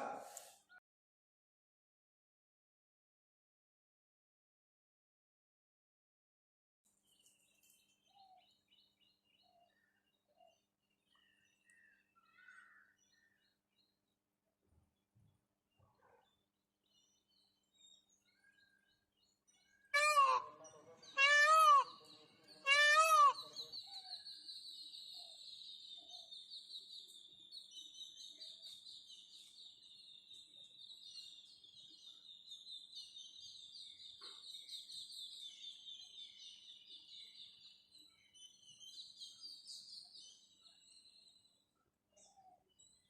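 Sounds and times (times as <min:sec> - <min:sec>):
peafowl wailing calls: 0:20.0 - 0:23.6.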